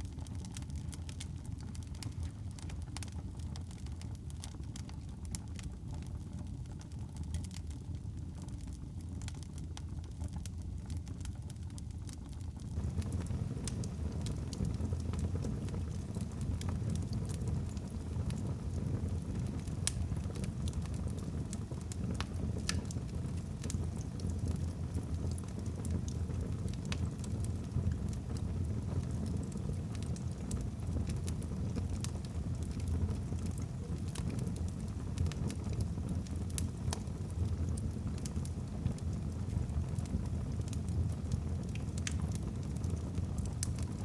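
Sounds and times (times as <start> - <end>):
low rumble of flames: 0.0 - 44.0
logs crackling and popping: 0.1 - 44.0.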